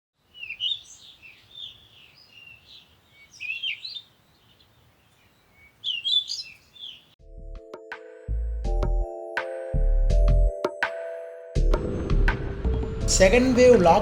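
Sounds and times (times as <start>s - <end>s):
songbirds singing: 0.2s - 7.2s.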